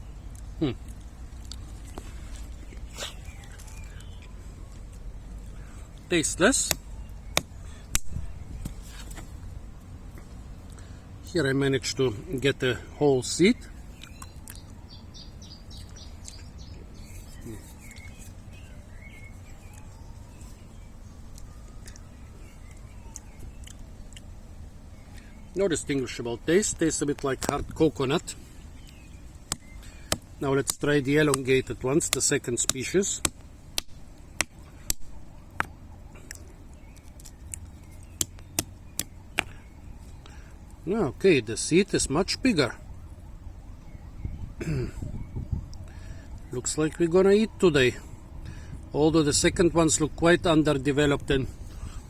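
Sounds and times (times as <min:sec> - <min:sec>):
low outdoor background hum: 0:00.0 - 0:52.0
small birds chirping: 0:00.0 - 0:52.0
fruit shell cracking: 0:06.6 - 0:09.2, 0:14.0 - 0:14.8, 0:28.8 - 0:39.6.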